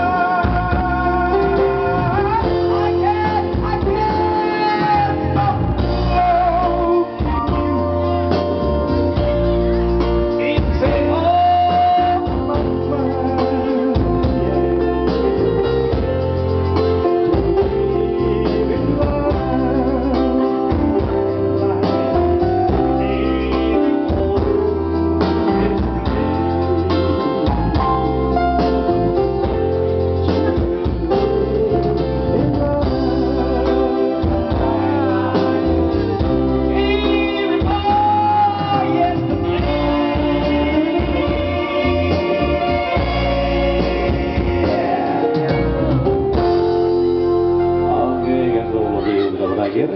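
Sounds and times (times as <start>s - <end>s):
electronic organ keyboard: 0.0s - 49.9s
guitar: 0.0s - 49.9s
person singing: 0.0s - 49.9s
pulsing bass beat: 14.0s - 47.8s.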